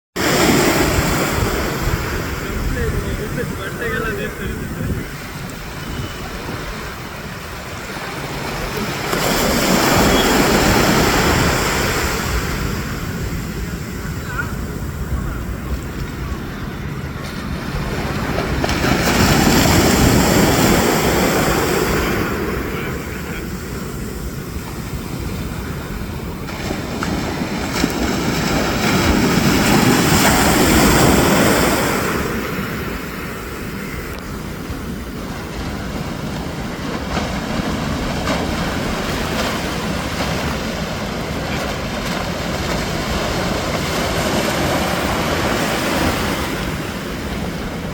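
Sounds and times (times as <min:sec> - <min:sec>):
sea waves washing in: 0:00.2 - 0:47.9
wind rumbling on microphone: 0:00.2 - 0:47.9.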